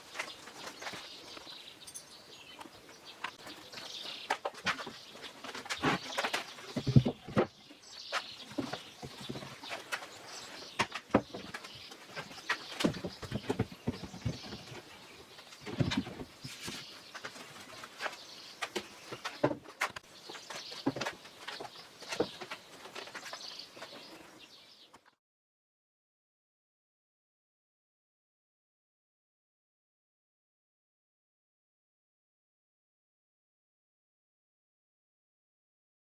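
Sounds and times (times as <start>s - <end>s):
rustling: 0.0s - 24.5s.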